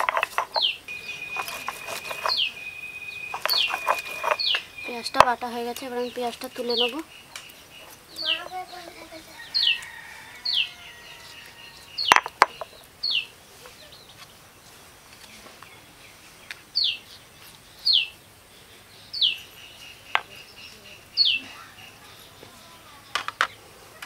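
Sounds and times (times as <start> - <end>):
bird whistling: 0.6 - 5.2.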